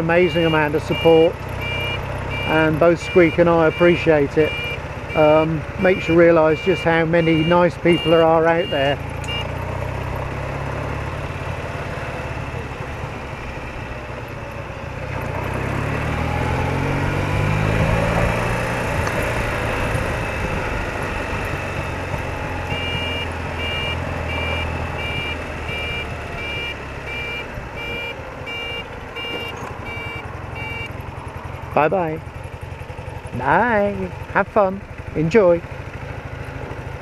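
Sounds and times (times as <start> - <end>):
motorcycle engine running: 0.0 - 37.0
road noise: 0.0 - 37.0
two-tone electronic beep: 0.3 - 5.5, 7.2 - 9.5, 22.6 - 30.9.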